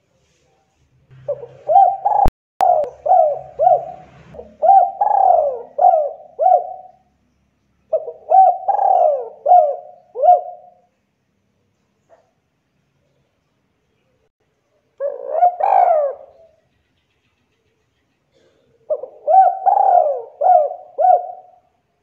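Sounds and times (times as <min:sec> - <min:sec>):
dove cooing: 0:01.2 - 0:07.1, 0:07.9 - 0:10.9, 0:15.0 - 0:16.6, 0:18.3 - 0:21.7.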